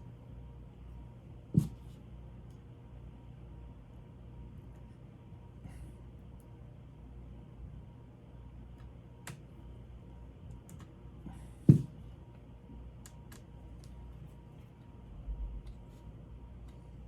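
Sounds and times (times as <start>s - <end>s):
small clicks and taps of parts: 8.7s - 9.4s, 10.5s - 10.9s, 13.0s - 14.0s.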